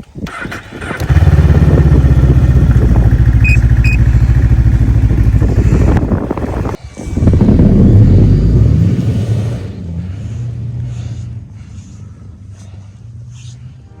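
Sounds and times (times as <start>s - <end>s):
snowmobile engine running: 0.9s - 9.8s
short high beeps: 3.4s - 4.1s.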